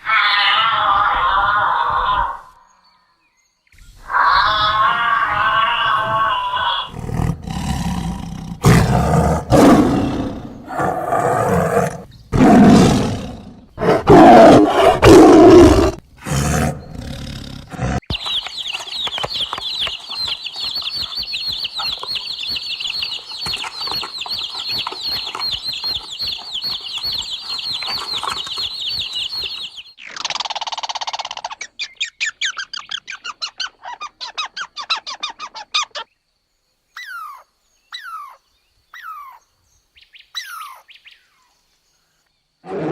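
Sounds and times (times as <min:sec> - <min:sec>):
large animal roaring: 0:04.1 - 0:18.0.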